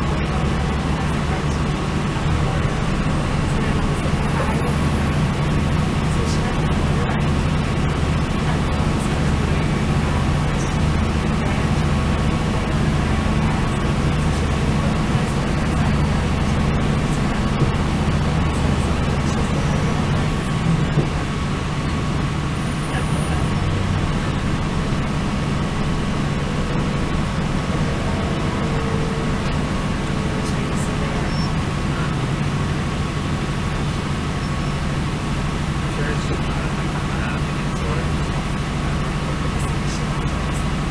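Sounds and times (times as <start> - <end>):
diesel train engine drone: 0.0 - 40.9
train wheels on rails: 0.0 - 40.9.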